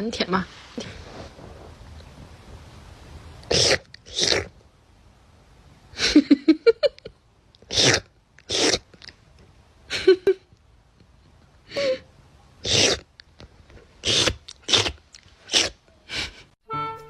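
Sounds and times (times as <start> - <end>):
dog sneezing: 3.5 - 4.5, 7.7 - 8.8, 12.6 - 13.0, 14.0 - 15.8.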